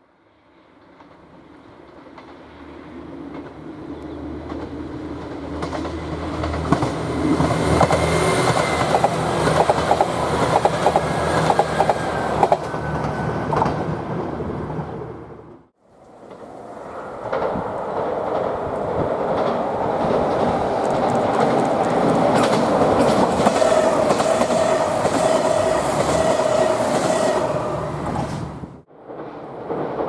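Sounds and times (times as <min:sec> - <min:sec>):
train engine drone: 0:00.0 - 0:30.0
wheels clattering over rail joints: 0:17.2 - 0:27.4.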